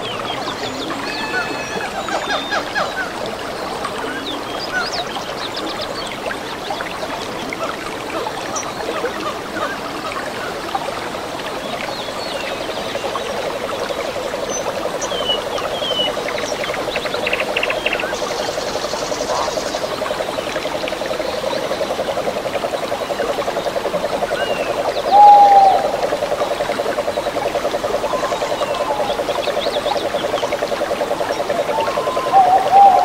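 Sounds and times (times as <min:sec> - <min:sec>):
bird chirps and whistled calls: 0:00.0 - 0:02.6
stream trickling: 0:00.0 - 0:33.0.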